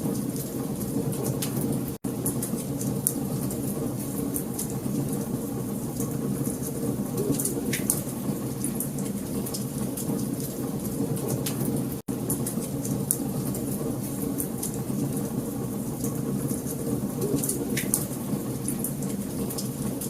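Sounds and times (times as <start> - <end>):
fire rumbling: 0.0 - 20.0.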